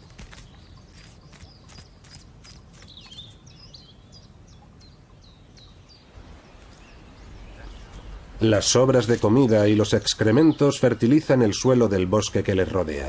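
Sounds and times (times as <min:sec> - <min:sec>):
birds chirping: 0:00.0 - 0:13.0
low outdoor rumble: 0:00.0 - 0:13.0.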